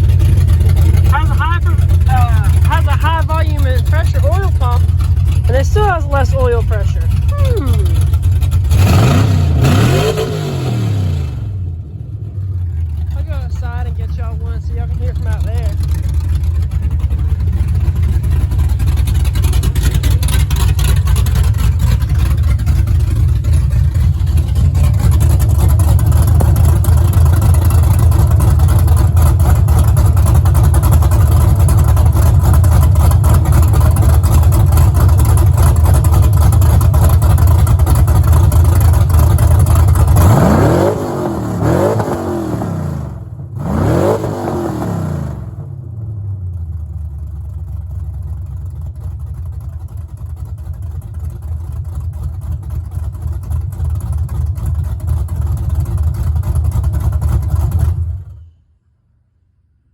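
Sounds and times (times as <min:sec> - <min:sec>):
engine revving: 0:00.0 - 0:46.0
engine idling with choppy lope: 0:00.0 - 0:58.9.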